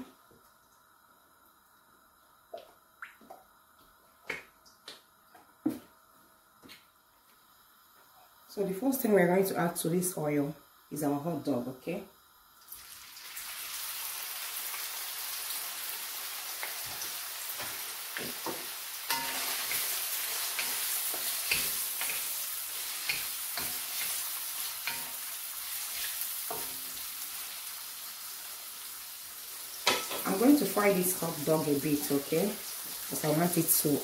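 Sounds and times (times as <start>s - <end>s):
sausages sizzling in hot oil: 12.5s - 34.0s.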